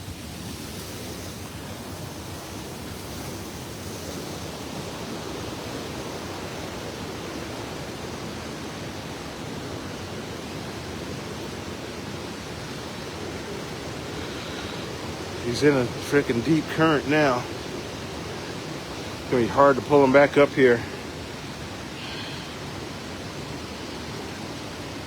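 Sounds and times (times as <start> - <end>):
fast-flowing river water: 0.0 - 25.0.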